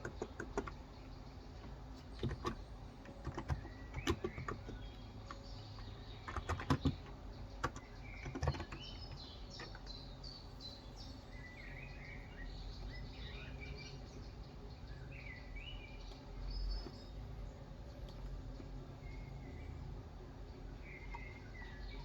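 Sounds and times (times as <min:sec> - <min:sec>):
birds chirping: 0:00.0 - 0:22.0
keyboard keystrokes: 0:03.2 - 0:04.8, 0:06.3 - 0:09.8.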